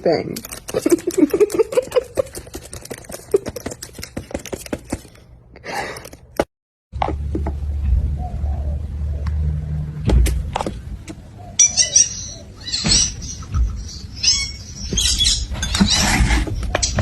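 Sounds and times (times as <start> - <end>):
high-pitched animal chirps: 11.6 - 16.1.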